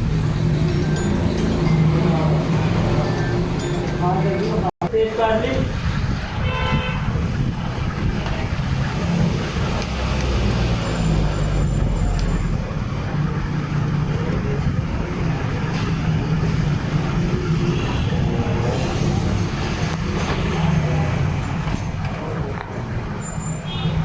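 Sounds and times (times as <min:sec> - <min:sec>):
road traffic: 0:00.0 - 0:24.0
low engine rumble: 0:07.0 - 0:23.6.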